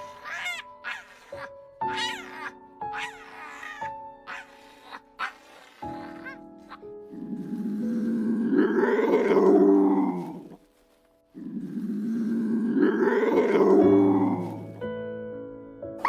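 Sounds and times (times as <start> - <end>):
large animal calling: 0.0 - 10.6.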